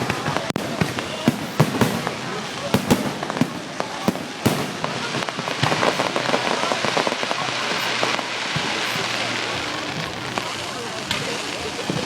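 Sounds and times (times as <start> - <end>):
firework bang: 0.0 - 7.5
firework crackling pops: 0.0 - 12.0.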